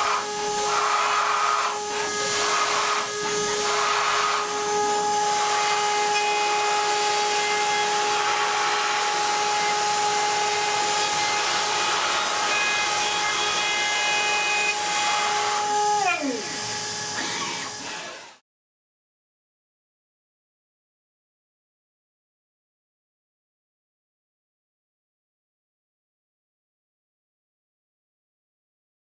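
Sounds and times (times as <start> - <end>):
metal cutting hiss: 0.0 - 18.4.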